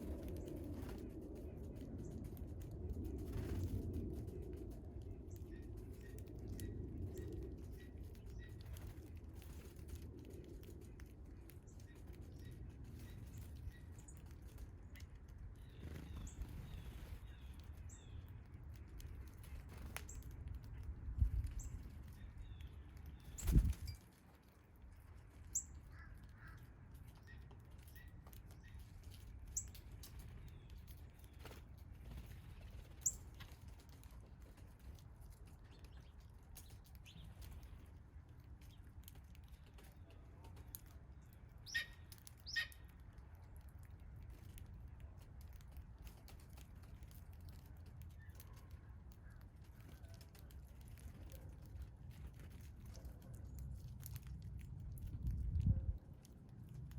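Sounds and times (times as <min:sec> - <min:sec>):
songbirds chirping: 0:10.3 - 0:43.0.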